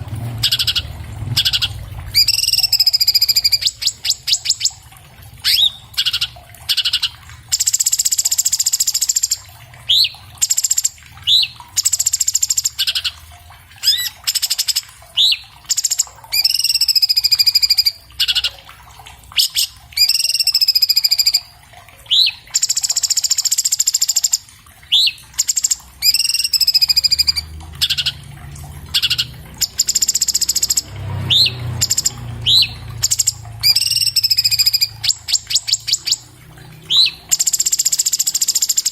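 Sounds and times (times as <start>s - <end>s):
bird singing trills and whistles: 0.4s - 4.8s, 5.4s - 13.2s, 13.8s - 18.6s, 19.4s - 21.5s, 22.1s - 28.2s, 28.9s - 38.9s.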